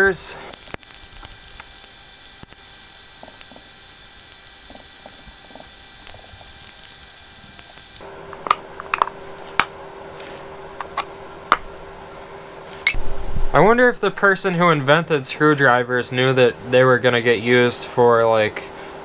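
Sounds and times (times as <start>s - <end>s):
background hum: 0.5s - 8.0s.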